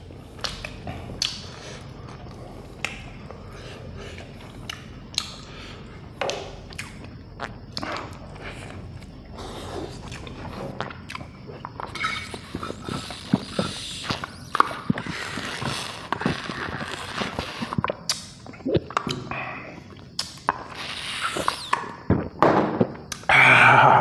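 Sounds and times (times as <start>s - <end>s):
person chewing crispy food: 12.4s - 18.7s.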